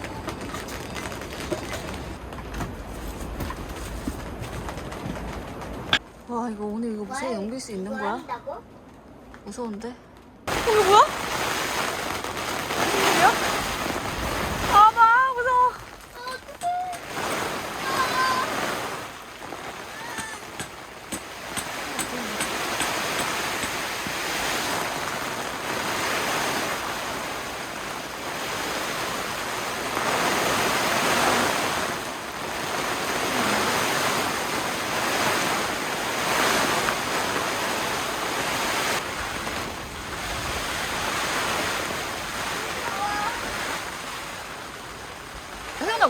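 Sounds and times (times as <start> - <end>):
strong gusty wind: 10.4 - 46.0.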